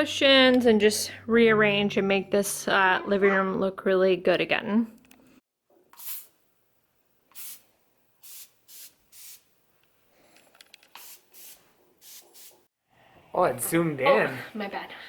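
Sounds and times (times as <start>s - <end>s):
air freshener spray squirts: 5.9s - 6.4s, 7.3s - 9.5s, 10.9s - 12.7s.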